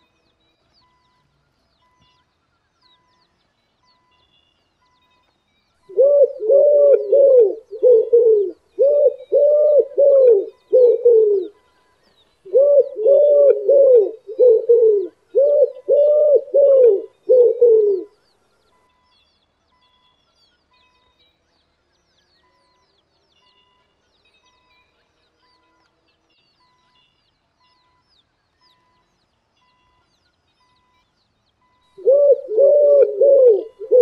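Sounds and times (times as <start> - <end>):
dove cooing: 5.9 - 11.6, 12.4 - 18.2, 32.0 - 34.0
small bird chirps: 6.9 - 34.0.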